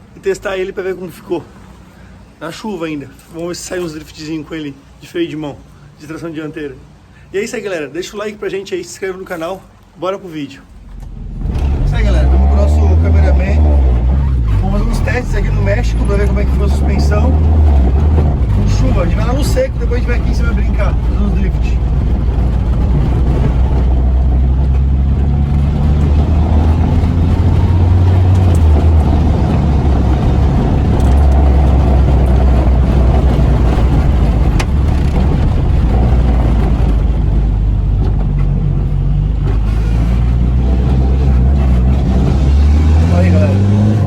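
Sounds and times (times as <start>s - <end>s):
road noise: 0.0s - 44.0s
car engine running under load: 10.7s - 44.0s.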